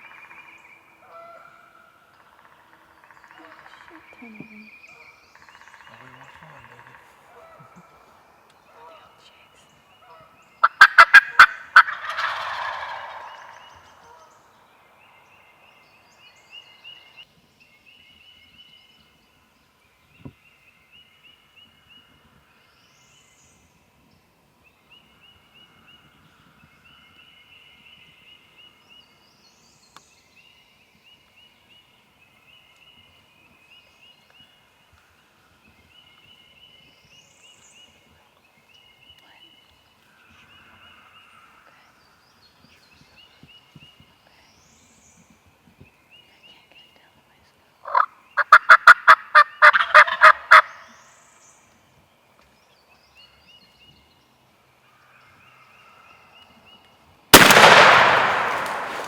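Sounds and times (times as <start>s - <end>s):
turkey gobbling: 10.6s - 13.7s, 47.8s - 50.8s.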